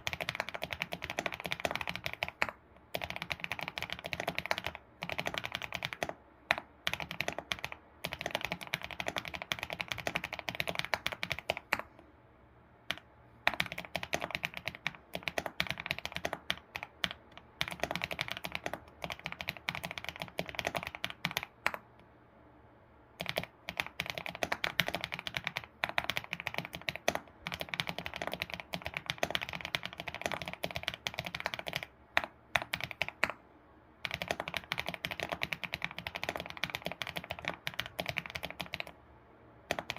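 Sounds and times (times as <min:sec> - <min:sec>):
computer keyboard typing: 0:00.0 - 0:12.0, 0:12.9 - 0:21.9, 0:23.2 - 0:33.4, 0:34.0 - 0:39.0, 0:39.6 - 0:39.9.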